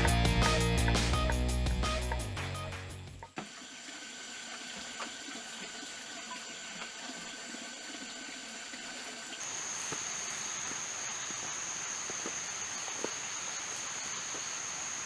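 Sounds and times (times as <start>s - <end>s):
background music: 0.0s - 3.3s
running water hiss: 3.4s - 15.0s
insects trilling: 9.4s - 15.0s.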